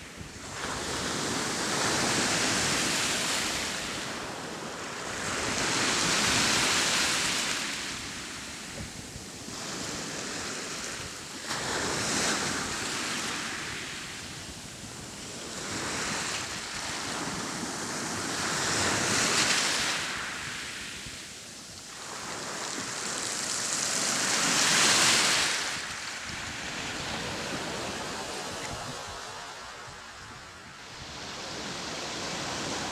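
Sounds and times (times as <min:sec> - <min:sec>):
sea waves breaking on shore: 0:21.9 - 0:32.9.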